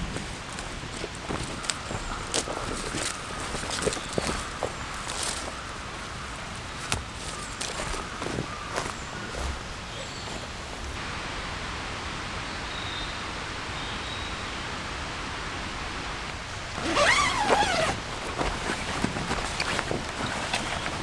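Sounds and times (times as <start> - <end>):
rain hiss: 10.3 - 19.0.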